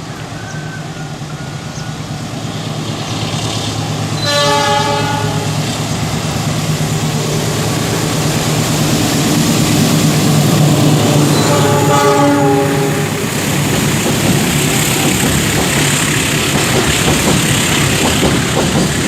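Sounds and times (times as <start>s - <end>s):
train rumbling past: 0.0s - 19.0s
train horn blast: 4.2s - 5.6s, 10.5s - 13.3s.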